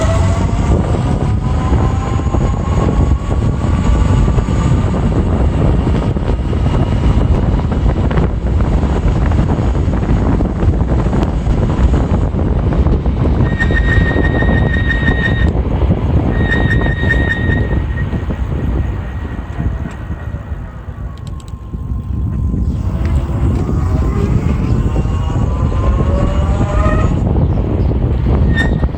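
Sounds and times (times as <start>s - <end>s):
wind rumble on microphone: 0.0s - 28.9s
electric motor whine: 13.2s - 28.6s.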